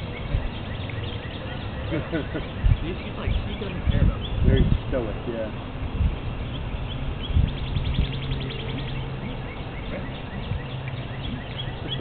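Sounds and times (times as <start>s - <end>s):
small birds chirping: 0.0s - 12.0s
bird fast trill: 6.4s - 12.0s.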